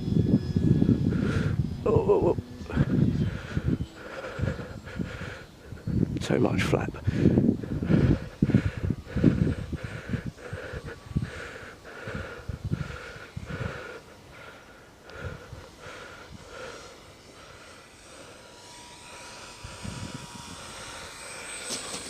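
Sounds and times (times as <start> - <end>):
distant model plane motor drone: 0.0 - 22.0.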